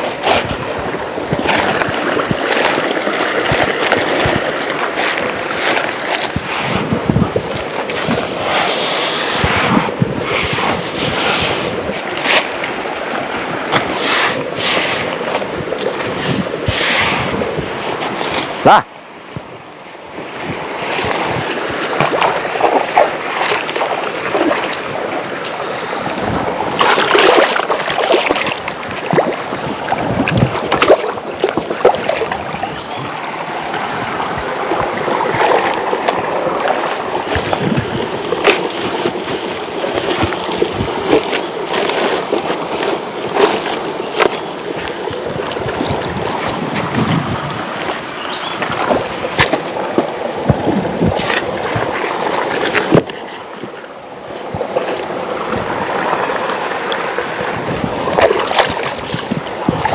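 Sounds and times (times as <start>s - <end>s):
river water rushing: 0.0s - 59.9s
water splashing and sloshing: 0.0s - 59.9s.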